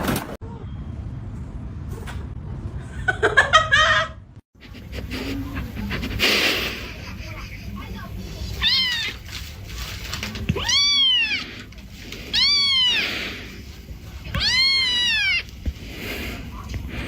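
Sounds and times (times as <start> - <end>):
cat meowing: 8.6 - 9.4, 10.5 - 11.7, 12.3 - 13.3, 14.3 - 15.6.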